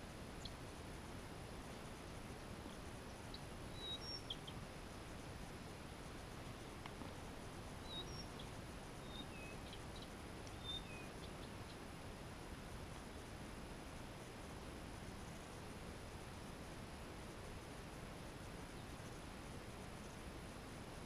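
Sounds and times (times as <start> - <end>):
faint background hiss: 0.0 - 21.0
small birds chirping: 0.1 - 12.0, 18.6 - 20.3.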